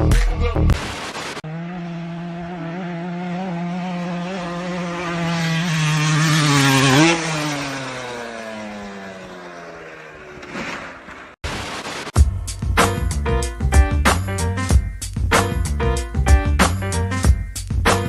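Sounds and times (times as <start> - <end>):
music: 0.0 - 0.8, 12.2 - 18.0
vehicle engine passing by: 1.4 - 11.4.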